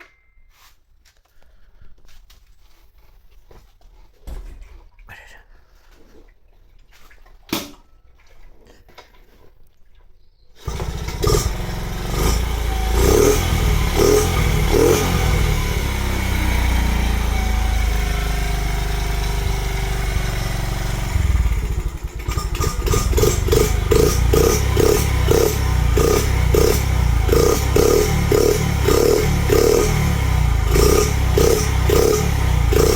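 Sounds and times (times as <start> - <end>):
small engine revving: 10.6 - 32.9.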